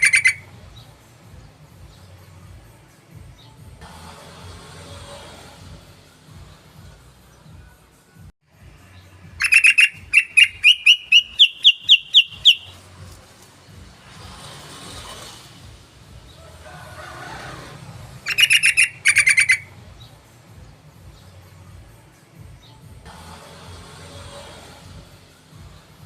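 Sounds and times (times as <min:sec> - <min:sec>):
bulbul chirping song: 0:00.0 - 0:02.6, 0:08.8 - 0:13.3, 0:18.2 - 0:21.6.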